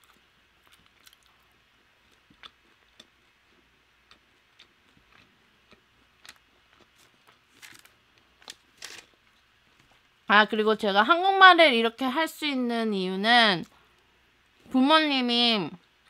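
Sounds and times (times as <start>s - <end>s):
crunchy chewing: 0.0s - 10.1s.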